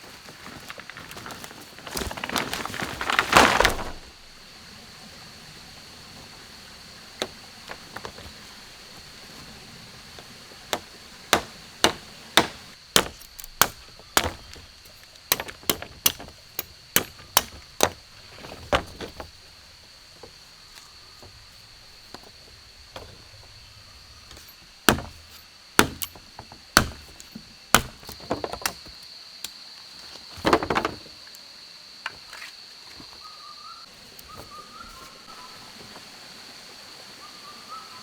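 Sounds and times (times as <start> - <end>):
chopping strikes: 10.7 - 14.6, 15.3 - 18.0, 24.9 - 28.2.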